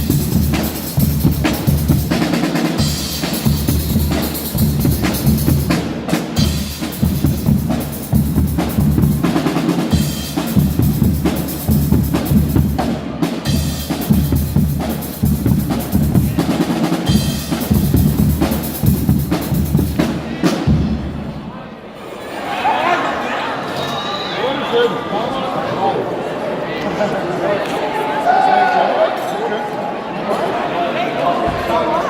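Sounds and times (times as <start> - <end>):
bass and snare drum beat: 0.0 - 21.2
carnival band playing: 0.0 - 22.5.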